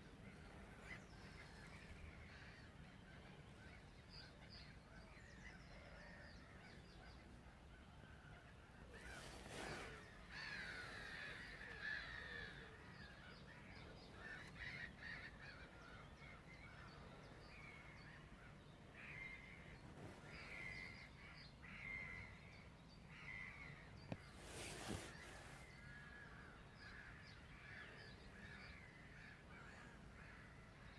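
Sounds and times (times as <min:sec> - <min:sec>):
harsh bird calls: 0:08.8 - 0:30.6.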